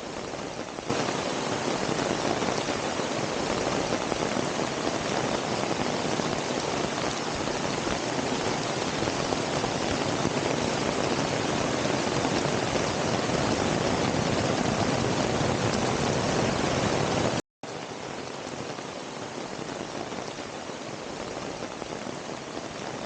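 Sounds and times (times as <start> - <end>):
heavy rain: 0.0 - 23.0.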